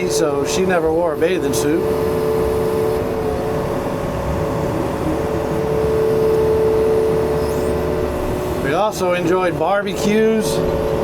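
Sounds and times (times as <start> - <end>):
excavator diesel engine running: 0.0 - 11.0
high-pitched whine: 0.0 - 11.0.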